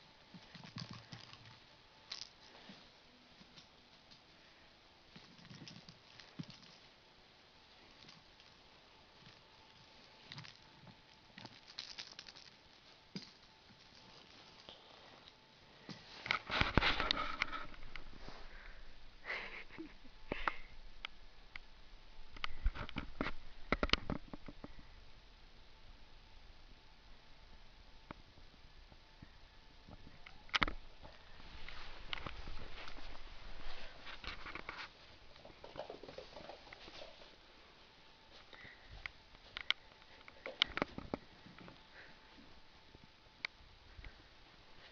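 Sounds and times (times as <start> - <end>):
rustles: 29.2 - 37.4.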